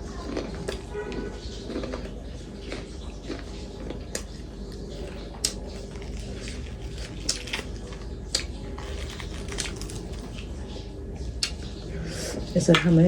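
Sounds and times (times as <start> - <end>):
person chewing food: 0.0 - 10.6, 11.2 - 11.8
mouth smacks: 5.3 - 5.9.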